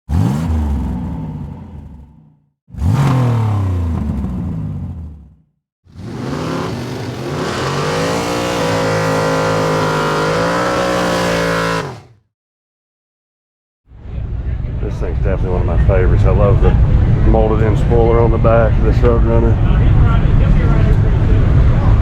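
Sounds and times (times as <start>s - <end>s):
car engine revving: 0.1s - 12.2s.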